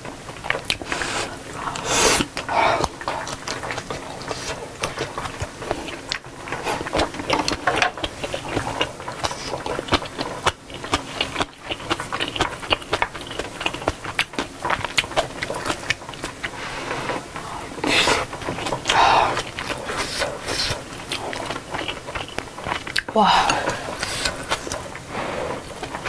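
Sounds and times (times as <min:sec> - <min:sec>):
close chewing with wet smacks: 0:00.0 - 0:16.6, 0:17.2 - 0:26.0.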